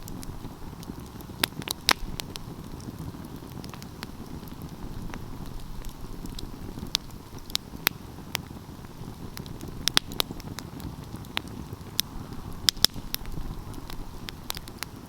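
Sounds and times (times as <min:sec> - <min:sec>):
low rumble of flame: 0:00.0 - 0:15.0
wood fire crackling and popping: 0:00.0 - 0:15.0.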